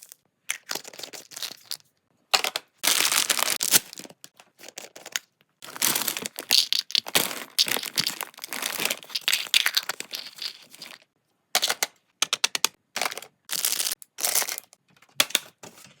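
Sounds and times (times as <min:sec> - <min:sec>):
plastic packaging crinkling: 0:02.8 - 0:05.0, 0:05.6 - 0:11.0.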